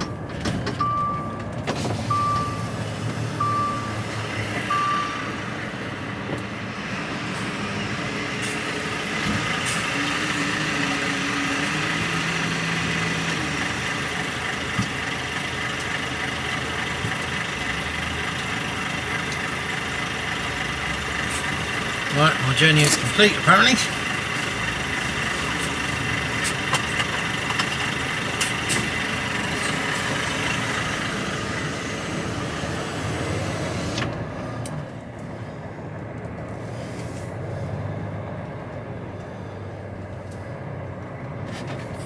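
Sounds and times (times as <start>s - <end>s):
diesel engine running: 0.0s - 42.0s
reversing alarm beeps: 0.8s - 1.5s, 2.1s - 2.8s, 3.4s - 5.5s.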